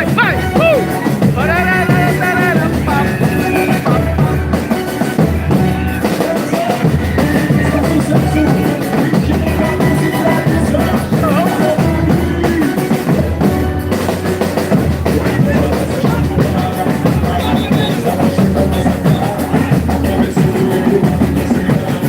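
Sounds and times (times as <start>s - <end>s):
heavy drums: 0.0s - 22.0s
live band playing: 0.0s - 22.0s
pulsing bass: 14.6s - 22.0s.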